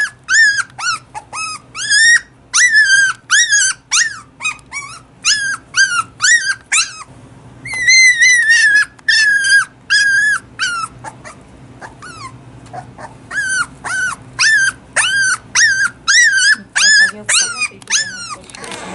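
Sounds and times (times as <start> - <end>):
puppy whining: 0.0 - 18.9.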